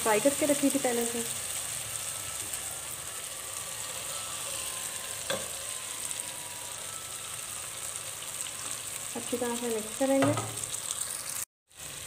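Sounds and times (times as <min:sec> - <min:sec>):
masala sizzling in hot oil: 0:00.0 - 0:12.0.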